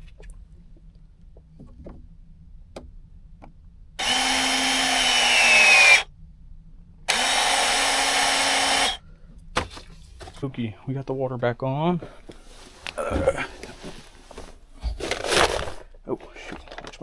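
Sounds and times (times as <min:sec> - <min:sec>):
power drill running: 0:04.0 - 0:06.1, 0:07.1 - 0:09.0.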